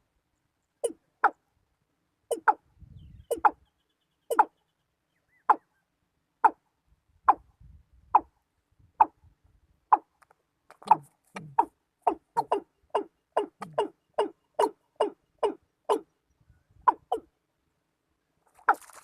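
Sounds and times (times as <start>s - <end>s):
watercock calling: 4.3s - 4.5s, 10.8s - 16.1s.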